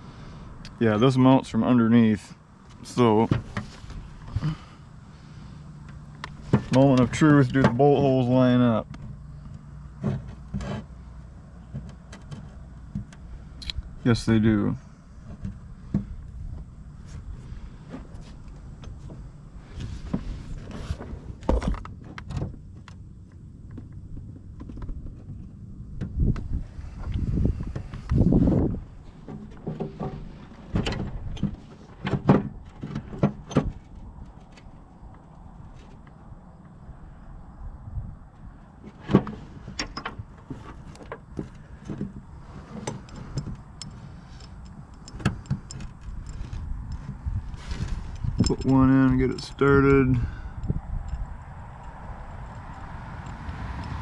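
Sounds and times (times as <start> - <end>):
low steady rumble: 0.0 - 54.0
metal knocks and clinks: 48.1 - 54.0.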